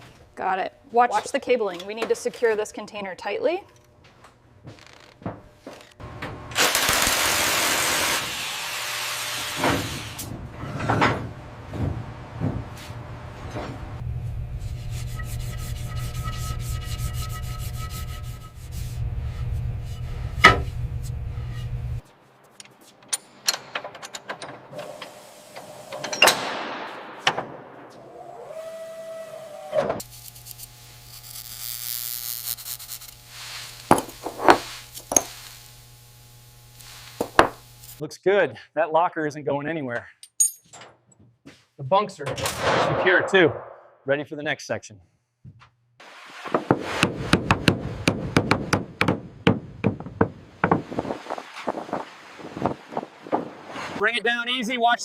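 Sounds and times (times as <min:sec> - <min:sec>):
knocks and scraping: 0:09.5 - 0:28.0, 0:33.4 - 0:35.7, 0:45.4 - 0:54.0
low machine drone: 0:11.4 - 0:22.0
loud hiss: 0:30.8 - 0:38.0.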